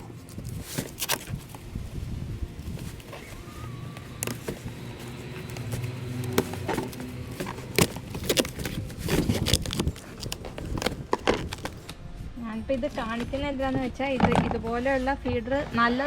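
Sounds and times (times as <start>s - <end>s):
box and packaging handled: 0.0s - 12.0s.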